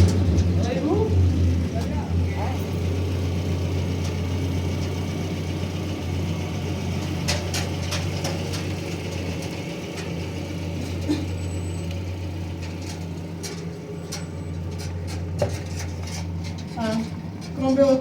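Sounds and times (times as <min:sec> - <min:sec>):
car engine idling: 0:00.0 - 0:18.0
light clicks and knocks: 0:12.6 - 0:17.7.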